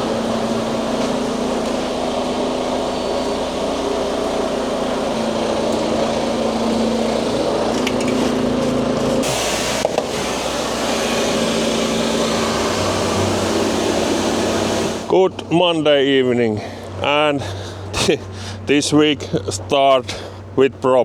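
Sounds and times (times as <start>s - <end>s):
truck diesel engine running: 0.0s - 21.0s.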